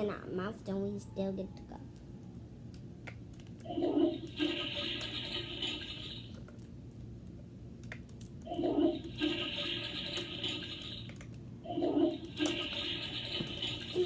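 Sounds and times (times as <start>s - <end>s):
toy toilet flush sound effect: 3.7s - 6.4s, 8.5s - 14.0s.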